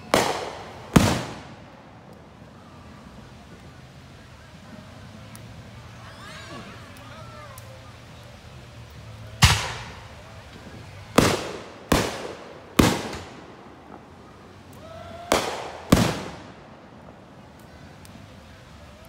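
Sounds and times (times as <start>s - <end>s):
fireworks bangs with echo: 0.0s - 2.2s, 9.3s - 17.9s.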